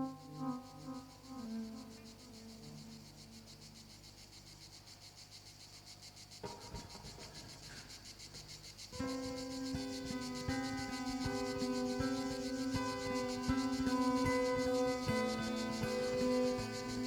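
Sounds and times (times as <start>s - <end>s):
guitar notes: 0.0s - 3.1s, 9.0s - 17.0s
held drone tones: 0.0s - 4.0s, 9.0s - 17.0s
cicada buzzing: 0.0s - 17.0s.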